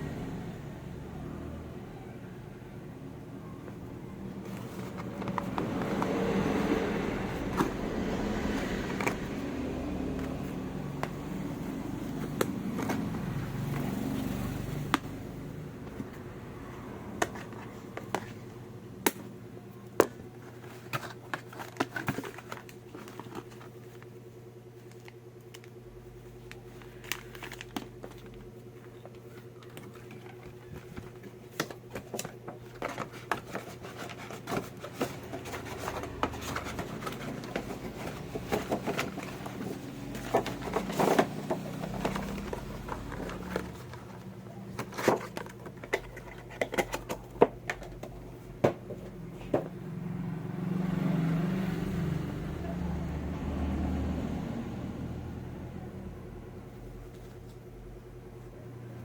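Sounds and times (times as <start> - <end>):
plastic packaging clicks and crinkling: 20.0 - 24.1, 24.8 - 48.2.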